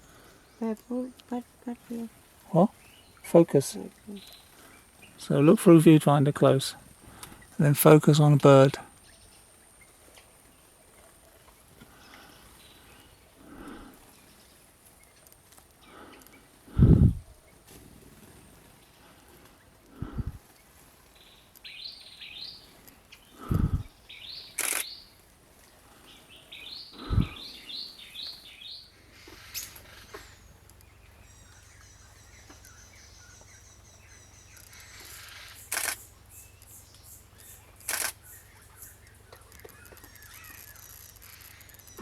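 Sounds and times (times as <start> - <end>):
small birds chirping: 0.0 - 42.0
sharp clicks: 24.6 - 24.9, 35.7 - 36.0, 37.8 - 38.2.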